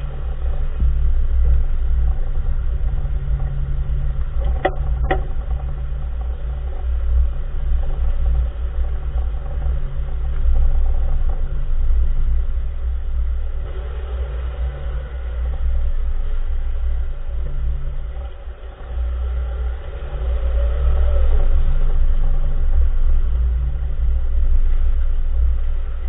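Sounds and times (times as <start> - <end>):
car road rumble: 0.0 - 26.0
sharp clunking knocks: 4.2 - 6.1.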